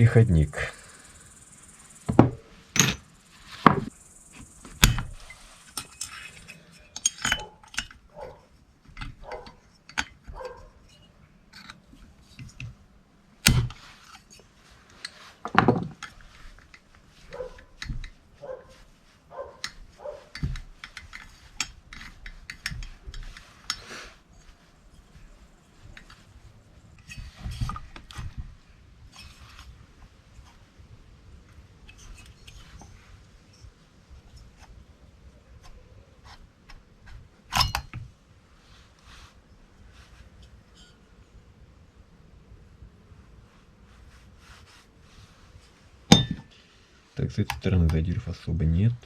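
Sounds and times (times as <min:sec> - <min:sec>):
metal parts and tools clinking: 0:02.1 - 0:03.9, 0:04.8 - 0:12.7, 0:37.5 - 0:38.0, 0:46.1 - 0:46.5.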